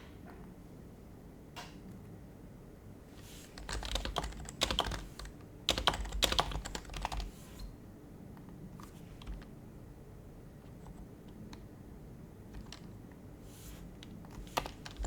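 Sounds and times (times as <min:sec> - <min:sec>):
typing on a keyboard: 0:03.6 - 0:07.3, 0:08.4 - 0:09.6, 0:12.5 - 0:13.2, 0:14.0 - 0:15.0.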